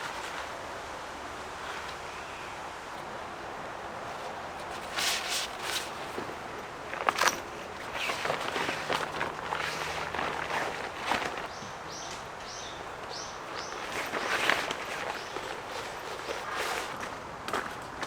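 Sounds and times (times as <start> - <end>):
scuffing footsteps and knocks: 4.6 - 18.0
bird chirping: 11.4 - 15.9.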